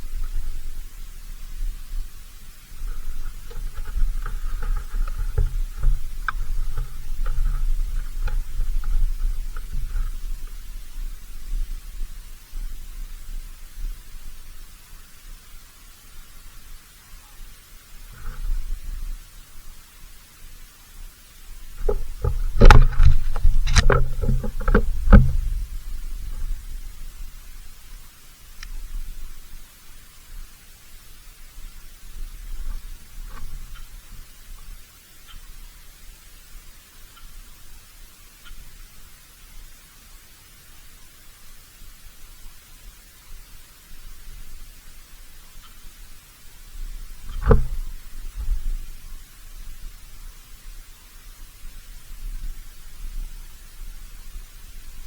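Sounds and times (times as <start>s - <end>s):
low wind rumble: 0.0s - 16.9s, 17.5s - 30.6s.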